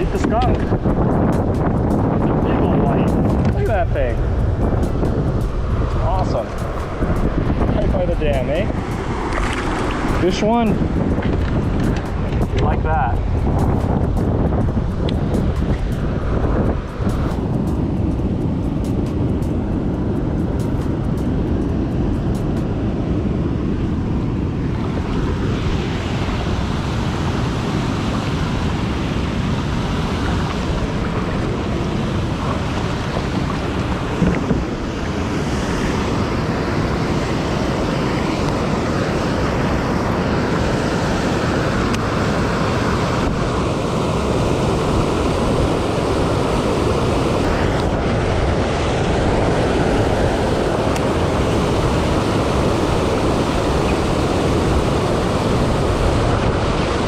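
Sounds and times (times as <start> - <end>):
wind buffeting microphone: 0.0 - 57.0
water rushing over a dam: 24.7 - 57.0.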